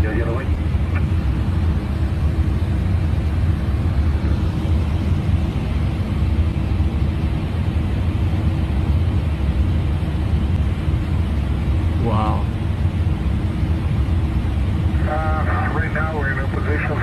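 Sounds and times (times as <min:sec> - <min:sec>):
airflow and engine noise: 0:00.0 - 0:17.0
faint steady hum: 0:00.0 - 0:17.0.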